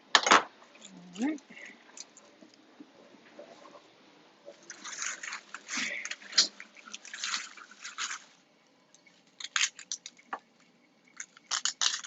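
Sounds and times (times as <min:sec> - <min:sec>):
crinkling and rustling: 0:00.6 - 0:12.0.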